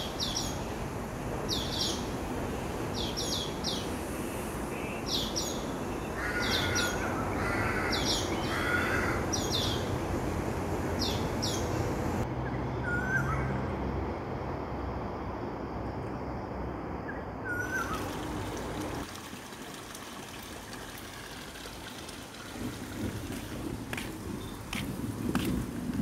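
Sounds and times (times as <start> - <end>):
birds chirping: 4.7 - 10.0, 11.0 - 13.5, 23.9 - 25.6.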